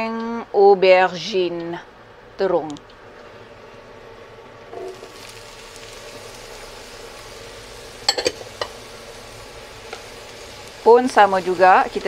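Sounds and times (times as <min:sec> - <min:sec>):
vegetables sizzling in oil: 0:03.3 - 0:12.0.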